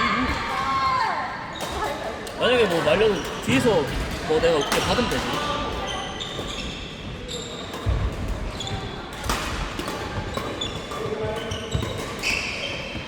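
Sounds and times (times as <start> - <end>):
sneakers squeaking on floor: 1.5 - 13.0
racket striking shuttlecock: 9.2 - 12.5.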